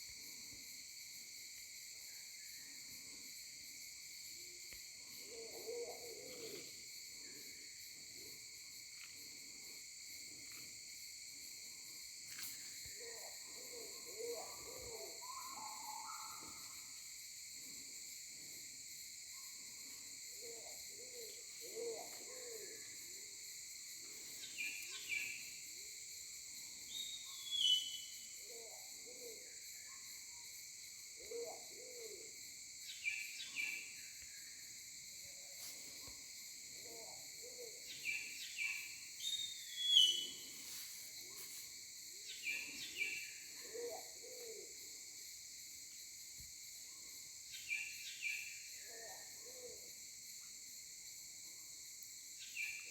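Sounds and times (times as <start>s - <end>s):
insects buzzing: 0.0s - 52.9s
bird chirps: 39.2s - 40.3s.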